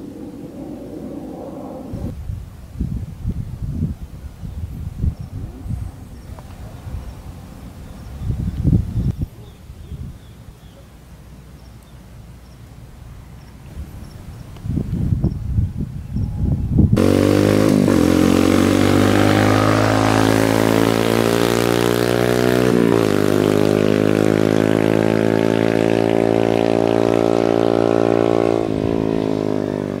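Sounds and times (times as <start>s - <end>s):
motorcycle engine accelerating: 16.9s - 30.0s.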